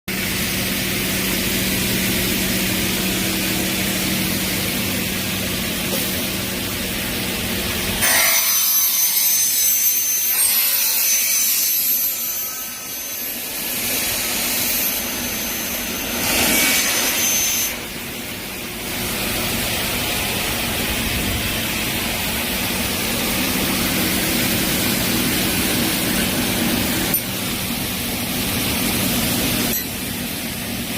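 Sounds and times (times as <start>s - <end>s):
saw machine humming: 0.1s - 30.9s
high-pitched ringing saw cut: 6.3s - 20.7s, 22.3s - 30.9s.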